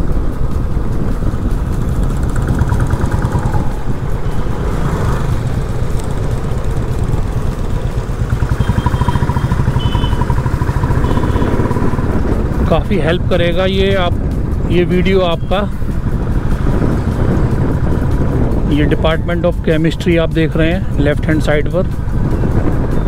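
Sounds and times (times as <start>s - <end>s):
motorcycle engine throbbing: 0.0s - 23.0s.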